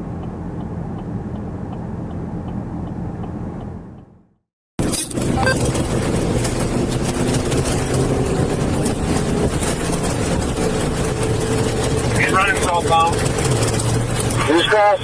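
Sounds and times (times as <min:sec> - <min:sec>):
road and wind noise: 0:00.0 - 0:15.0
car engine running: 0:04.8 - 0:15.0.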